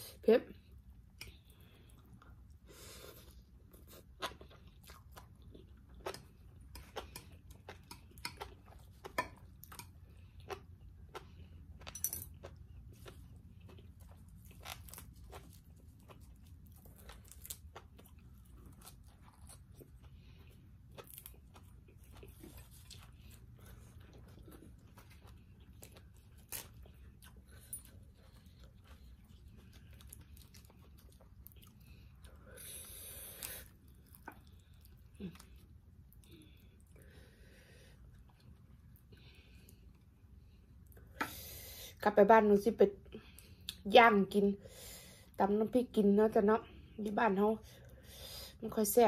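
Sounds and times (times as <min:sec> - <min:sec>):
faint low hum: 0:00.0 - 0:49.0
chewing crunchy leafy greens: 0:01.8 - 0:37.0.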